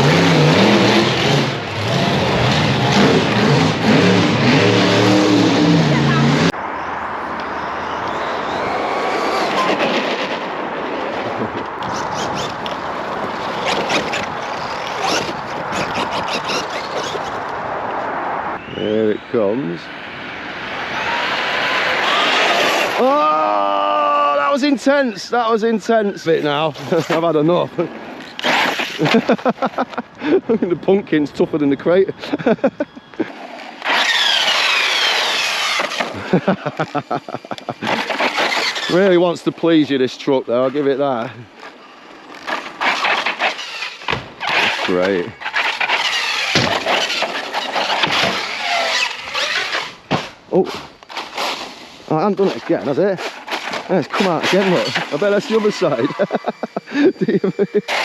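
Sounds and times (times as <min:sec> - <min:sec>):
rc truck motor and tyres: 0:00.0 - 0:23.6, 0:26.0 - 0:30.6, 0:31.2 - 0:58.0
tyres hissing: 0:33.8 - 0:58.0.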